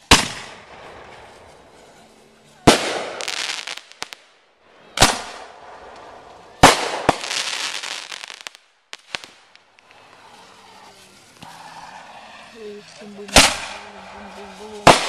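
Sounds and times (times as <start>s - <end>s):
firework bangs: 0.0s - 15.0s
small firework pops: 5.0s - 10.4s, 13.3s - 15.0s.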